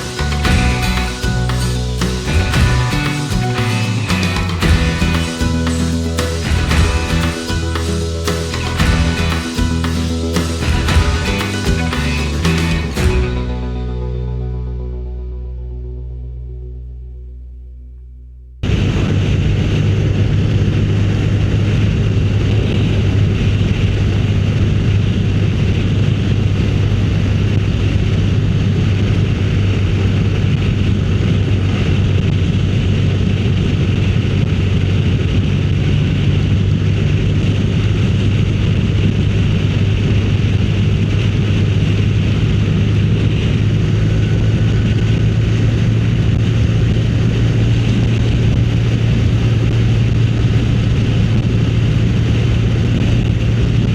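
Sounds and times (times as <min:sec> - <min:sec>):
motorcycle engine running: 0:00.0 - 0:14.8
wind rushing over microphone: 0:18.6 - 0:53.9.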